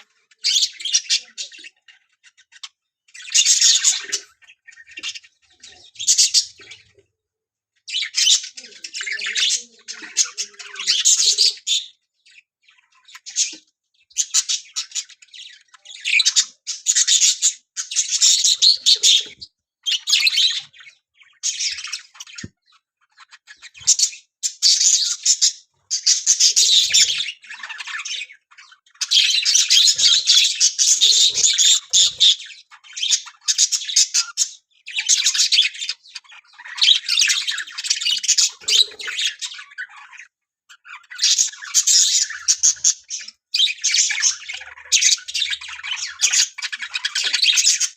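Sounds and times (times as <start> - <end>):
parrots screeching: 3.2 - 5.3, 14.2 - 22.5, 23.4 - 47.9.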